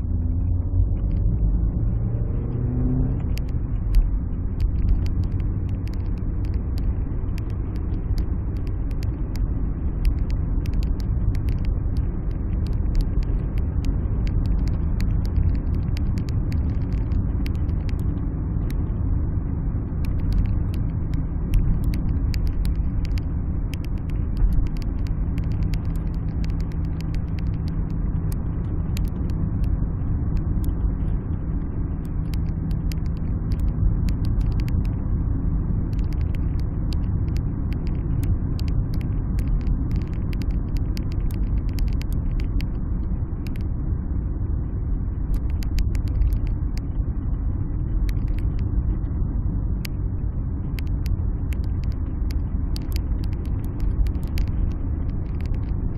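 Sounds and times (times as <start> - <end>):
engine and road noise rumble: 0.0 - 55.9
steady hum: 0.0 - 55.9
sharp clicks: 3.0 - 18.8, 20.0 - 29.7, 32.0 - 35.0, 35.9 - 42.8, 43.4 - 43.7, 45.3 - 46.9, 47.9 - 48.7, 50.6 - 55.9.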